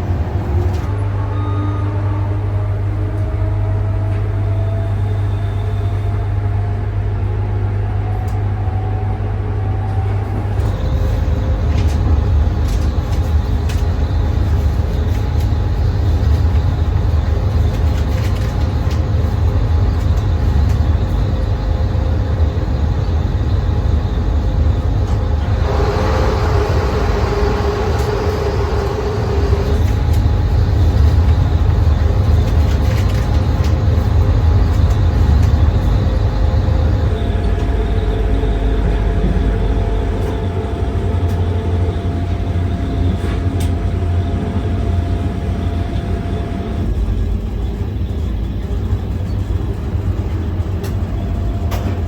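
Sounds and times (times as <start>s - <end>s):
train rumble: 0.0s - 52.0s
hiss with high squeal: 25.4s - 29.9s.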